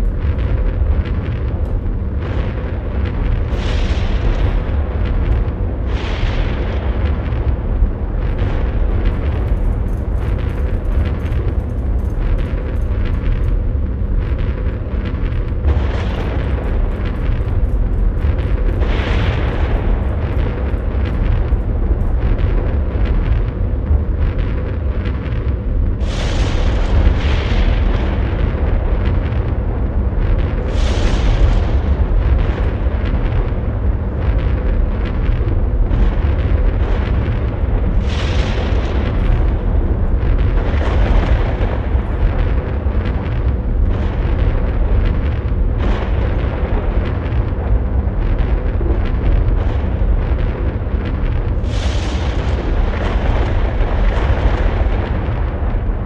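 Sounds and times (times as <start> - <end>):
deep rumbling noise: 0.0 - 56.0
hissing noise surges: 45.8 - 55.8.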